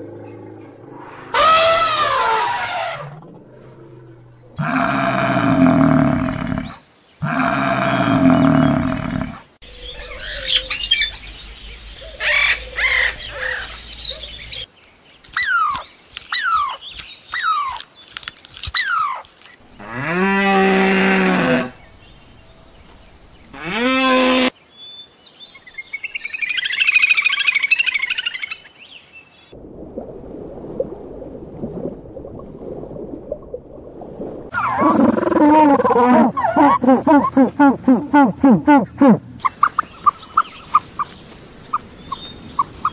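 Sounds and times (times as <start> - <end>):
bird chirps: 9.6 - 14.7, 39.4 - 42.9
long low animal calls: 34.6 - 39.6.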